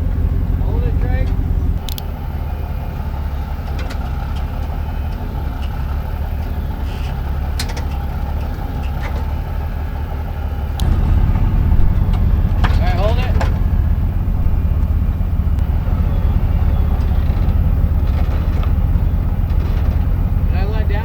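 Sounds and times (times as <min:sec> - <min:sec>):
truck engine running at low revs: 0:00.0 - 0:21.0
sharp clicks: 0:01.8 - 0:02.1.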